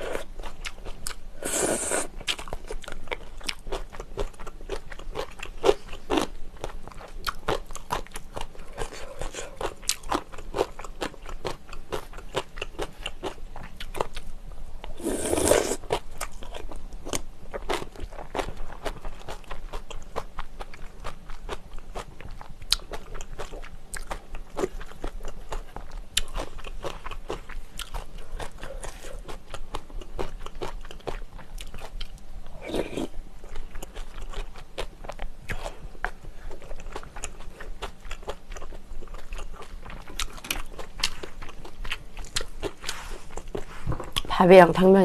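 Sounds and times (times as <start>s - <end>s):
wet mouth chewing: 14.9s - 44.3s.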